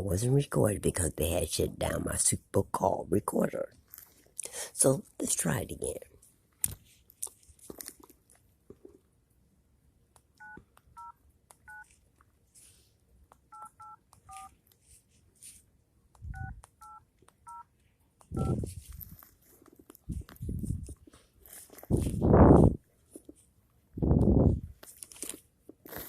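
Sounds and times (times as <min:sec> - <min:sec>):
touch-tone dialing beeps: 0:10.4 - 0:11.9, 0:13.5 - 0:14.5, 0:16.3 - 0:17.7, 0:18.4 - 0:18.6.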